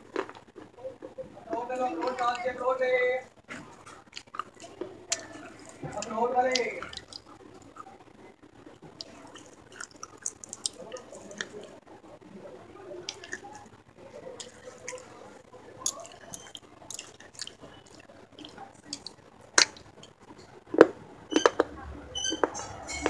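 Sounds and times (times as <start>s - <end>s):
chewing clay pot crunches: 0.0s - 2.5s, 3.4s - 11.8s, 13.0s - 23.0s
mouth clicks: 3.5s - 7.9s, 13.0s - 13.7s, 15.8s - 20.2s.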